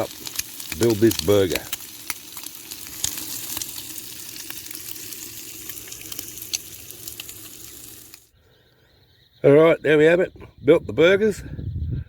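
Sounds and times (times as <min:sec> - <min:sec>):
bacon and onions sizzling: 0:00.0 - 0:08.3
fat popping and crackling: 0:00.0 - 0:08.3.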